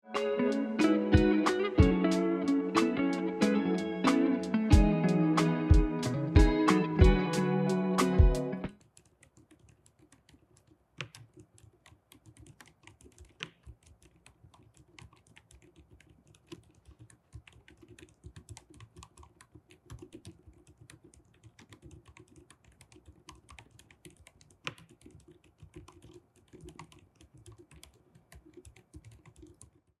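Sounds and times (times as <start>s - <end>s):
music: 0.0s - 8.7s
soft mechanical keyboard typing: 8.7s - 29.9s.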